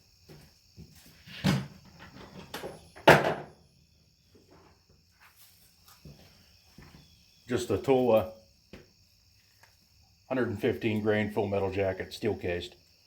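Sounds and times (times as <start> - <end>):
crickets chirping: 0.0 - 13.0
object knocking when set down: 1.4 - 3.5.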